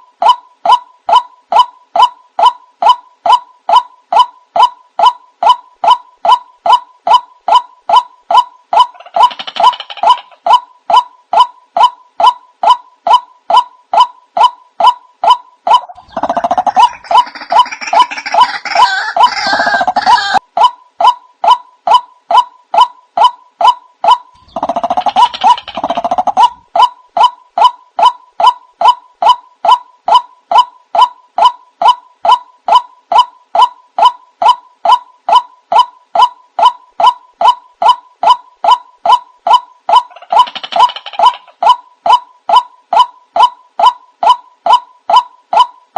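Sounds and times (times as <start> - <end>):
waterhen calling: 15.7 - 20.4.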